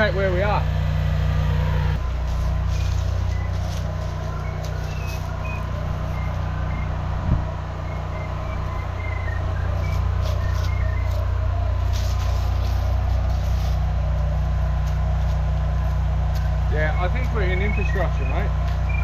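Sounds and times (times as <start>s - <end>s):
engine droning: 0.0s - 19.0s
electronic locator beeps: 2.7s - 7.1s, 7.8s - 11.3s, 16.8s - 19.0s.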